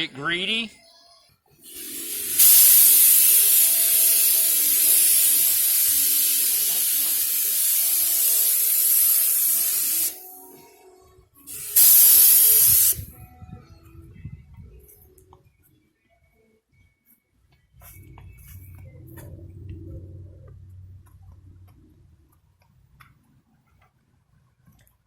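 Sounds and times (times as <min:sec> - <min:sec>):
paint spray gun hissing: 0:01.6 - 0:10.3, 0:11.5 - 0:13.1.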